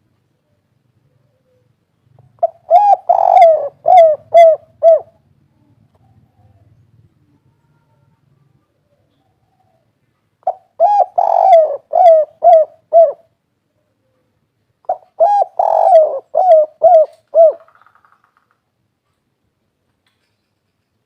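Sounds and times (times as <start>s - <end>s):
dove cooing: 1.0s - 13.4s, 14.8s - 17.8s.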